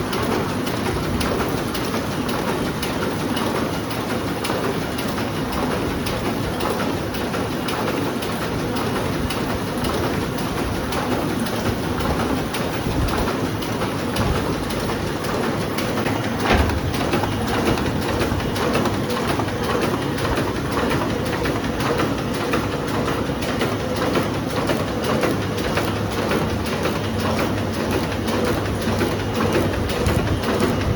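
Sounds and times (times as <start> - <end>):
printing press clatter: 0.0 - 30.9
loud knock: 16.0 - 19.1.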